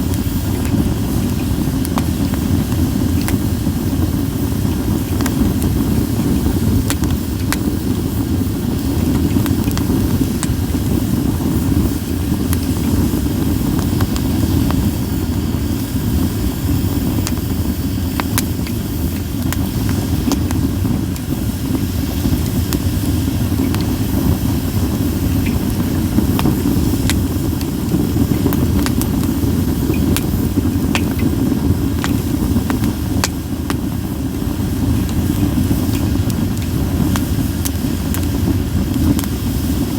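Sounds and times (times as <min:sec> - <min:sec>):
fire crackling and popping: 0:00.0 - 0:39.9
flames rumbling: 0:00.0 - 0:39.9.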